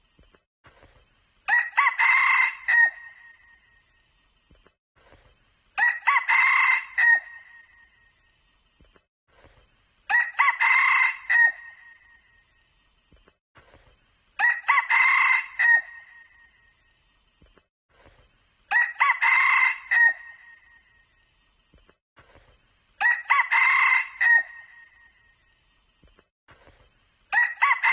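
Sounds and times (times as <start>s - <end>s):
rooster crowing: 1.5s - 3.1s, 5.8s - 7.6s, 10.1s - 11.9s, 14.4s - 16.2s, 18.7s - 20.6s, 23.0s - 24.9s, 27.3s - 27.9s.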